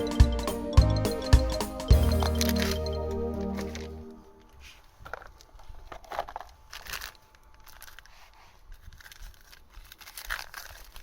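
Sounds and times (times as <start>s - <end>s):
packaging crinkling and rustling: 3.4s - 11.0s.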